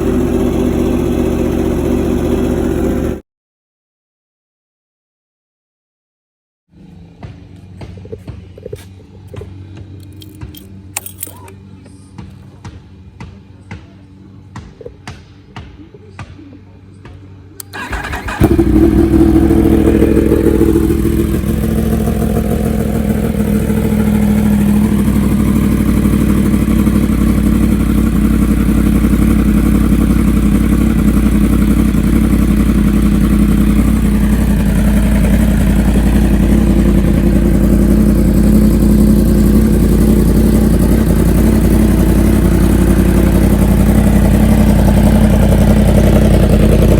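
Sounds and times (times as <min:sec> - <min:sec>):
motorcycle engine starting and idling: 0:00.0 - 0:03.2, 0:06.8 - 0:11.7, 0:17.6 - 0:46.9.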